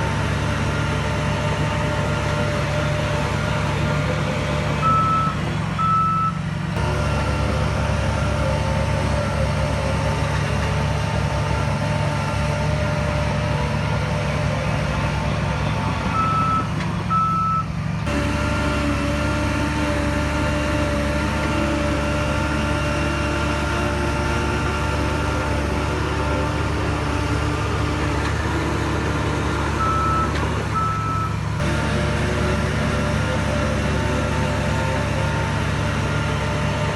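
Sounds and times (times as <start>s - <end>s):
heavy diesel machinery running: 0.0s - 36.9s
reversing alarm beeps: 4.8s - 6.4s, 16.1s - 17.7s, 29.8s - 31.4s.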